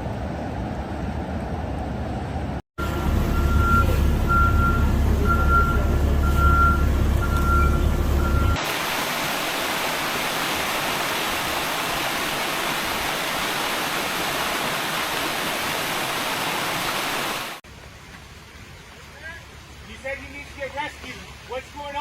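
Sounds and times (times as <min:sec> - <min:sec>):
heavy vehicle engine rumbling: 0:00.0 - 0:08.6
reversing alarm beeping: 0:02.8 - 0:08.6
floodwater rushing: 0:06.6 - 0:22.0.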